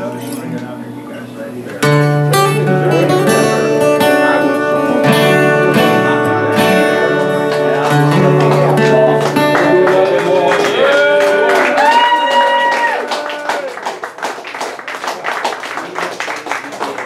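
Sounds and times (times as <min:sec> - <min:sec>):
acoustic guitar strumming chords: 0:00.0 - 0:11.5.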